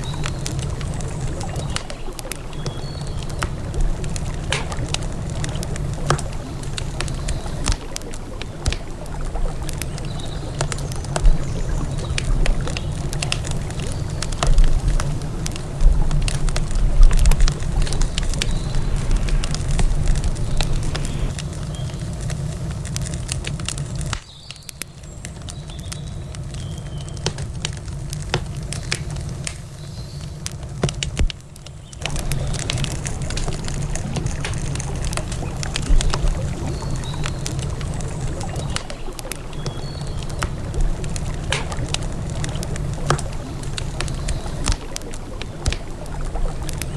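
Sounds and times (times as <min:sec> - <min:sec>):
river ambience: 0:00.0 - 0:22.2, 0:32.0 - 0:46.9
campfire crackling and popping: 0:00.0 - 0:46.9.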